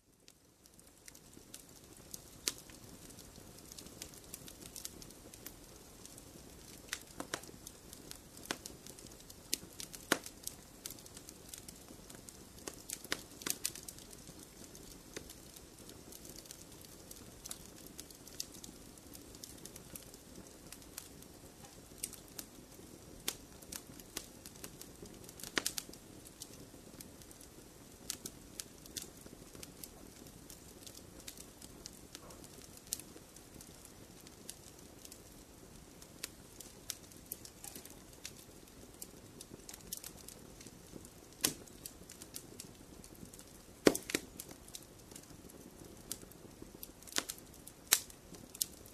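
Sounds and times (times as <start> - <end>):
logs crackling and popping: 0.0 - 48.9
fire hissing: 0.7 - 48.9.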